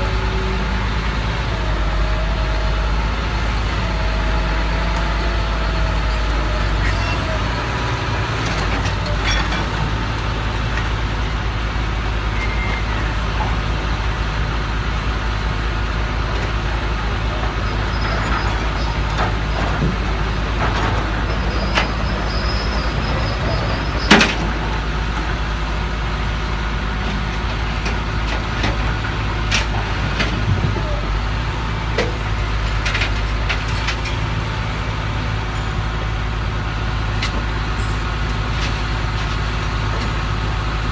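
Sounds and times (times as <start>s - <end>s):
diesel truck engine running: 0.0s - 40.9s
engine knocks: 15.6s - 34.8s.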